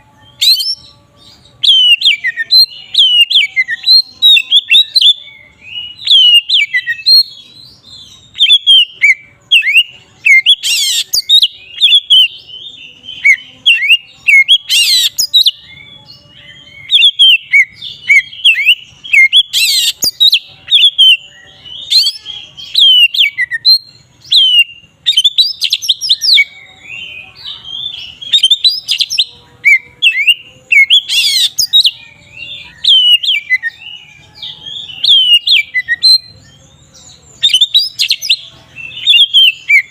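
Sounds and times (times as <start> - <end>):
magpie-robin whistled song: 0.0 - 39.9
harsh rasping bird calls: 5.8 - 12.4, 16.9 - 36.4.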